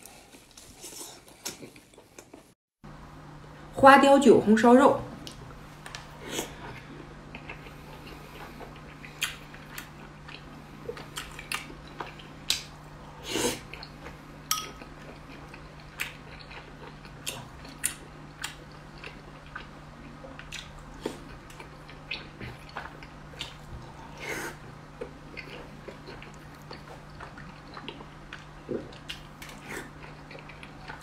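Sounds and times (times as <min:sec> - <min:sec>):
faint steady hum: 0:00.0 - 0:31.0
wet chewing and lip smacks: 0:07.3 - 0:12.7.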